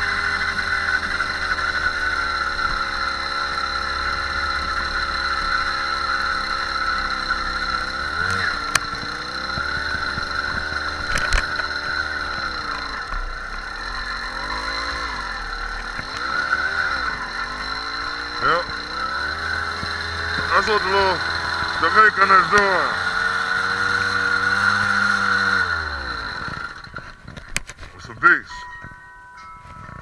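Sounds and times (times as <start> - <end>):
small motorbike engine running: 0.0 - 29.0, 29.6 - 30.0
sharp clicks: 26.4 - 28.0.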